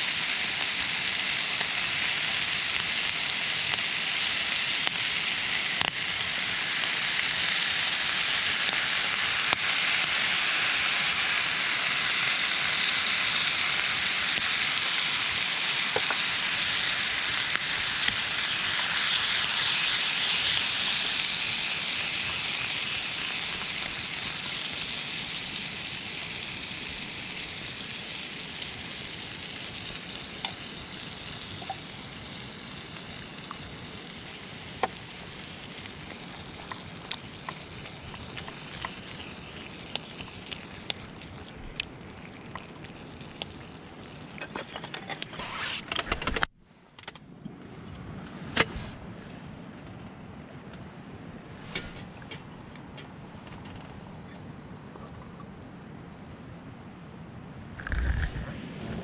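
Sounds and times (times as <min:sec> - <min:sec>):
food sizzling in a pan: 0:00.0 - 0:45.9.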